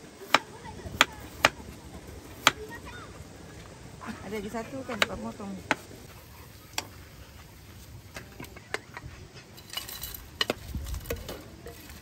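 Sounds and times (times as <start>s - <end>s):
utensils clinking: 8.5s - 12.0s.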